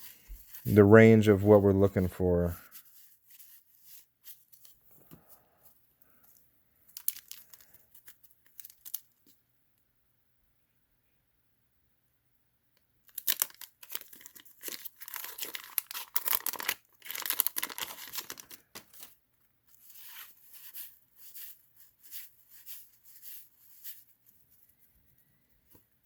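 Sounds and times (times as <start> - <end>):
wax paper wrapper tearing: 6.9 - 9.4, 13.1 - 24.5.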